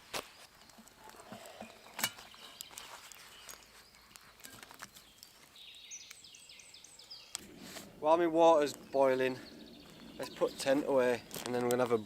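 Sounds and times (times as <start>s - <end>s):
cooking gear clicks and knocks: 0.6s - 5.4s, 10.2s - 12.0s.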